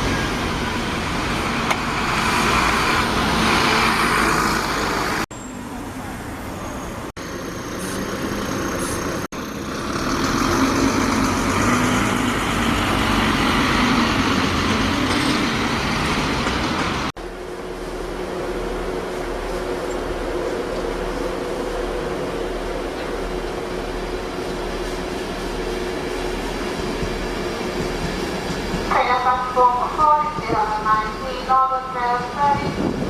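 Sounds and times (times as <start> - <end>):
bus engine running: 0.0 - 18.0
road traffic: 0.0 - 33.0.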